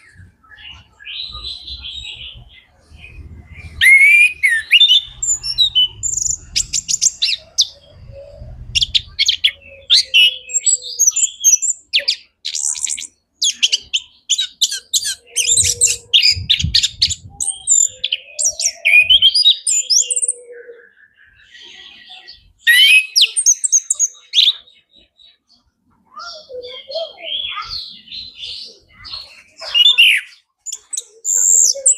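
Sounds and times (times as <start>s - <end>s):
thrush singing: 0.0s - 10.7s.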